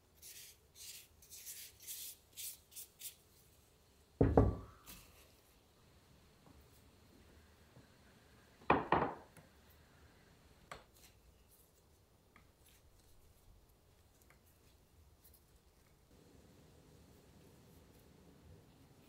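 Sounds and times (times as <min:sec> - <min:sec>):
soft ticks of kneading: 0:10.6 - 0:16.2.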